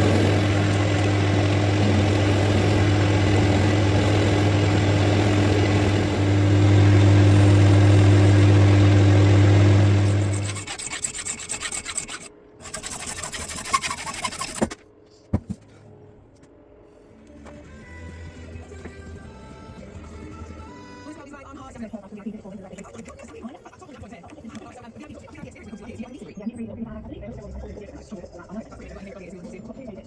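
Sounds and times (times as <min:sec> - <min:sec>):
electric power tool grinding: 0:00.0 - 0:14.8
short rasping strokes: 0:00.0 - 0:14.8.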